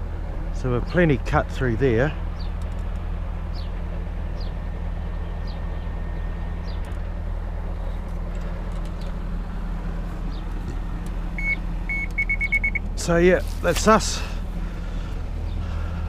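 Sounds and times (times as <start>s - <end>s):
excavator diesel engine running: 0.0s - 16.0s
short electronic beep: 11.4s - 12.8s.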